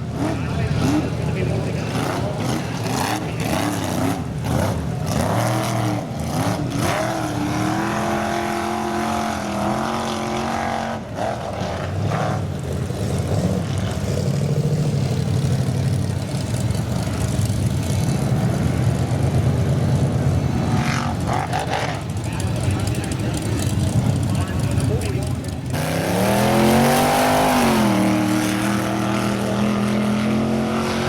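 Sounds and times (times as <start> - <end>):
off-road vehicle engine revving: 0.0 - 31.0.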